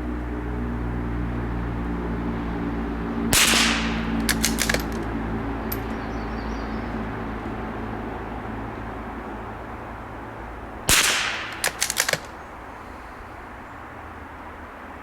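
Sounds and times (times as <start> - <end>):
rifle bolt clicking: 3.4 - 5.1, 5.7 - 5.9, 10.9 - 12.4
rifle shot: 3.4 - 5.1, 10.9 - 12.3.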